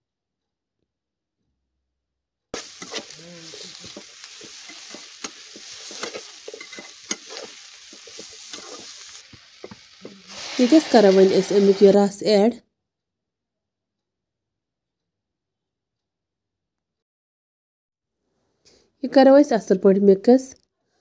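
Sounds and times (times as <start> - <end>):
metal skimmer scraping a pan: 2.6 - 12.0
vegetables sizzling in hot oil: 2.6 - 12.2.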